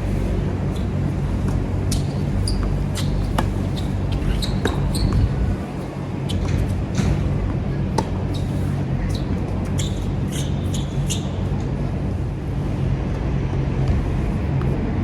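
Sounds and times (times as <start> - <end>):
steady low rumble: 0.0 - 15.0
tennis balls struck and bouncing: 0.6 - 11.4
short high squeaks: 1.9 - 6.7, 8.3 - 11.5.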